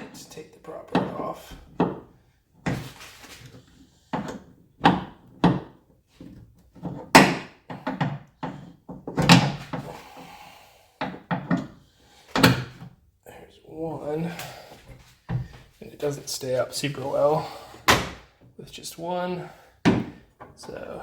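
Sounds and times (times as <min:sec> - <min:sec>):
knocks and clunks of car hood: 0:06.9 - 0:09.9.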